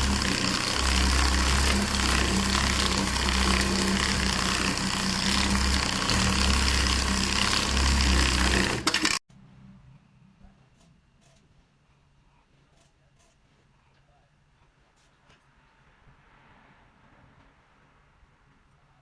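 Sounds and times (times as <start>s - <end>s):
loud machine humming: 0.0s - 9.2s.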